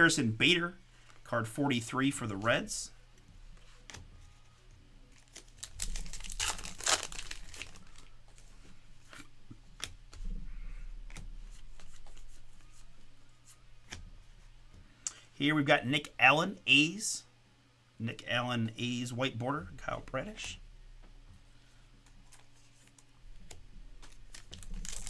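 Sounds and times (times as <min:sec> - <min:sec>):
foil wrapper tearing and crinkling: 0:05.1 - 0:08.1, 0:24.1 - 0:25.0.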